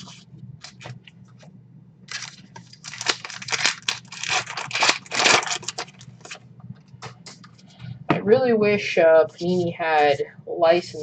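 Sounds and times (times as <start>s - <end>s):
foil wrapper tearing and crinkling: 2.1s - 6.4s.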